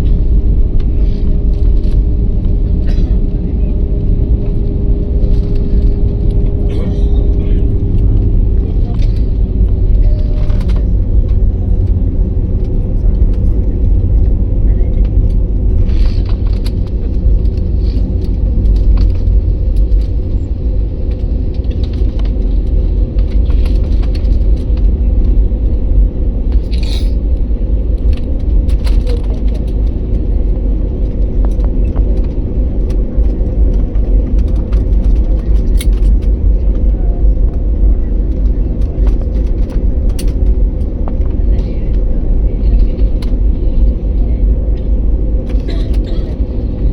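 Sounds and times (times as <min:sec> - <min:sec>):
jet airliner rumble: 0:00.0 - 0:46.9
steady hums: 0:00.0 - 0:46.9
faint rattles and clicks: 0:14.2 - 0:25.7, 0:27.9 - 0:46.9.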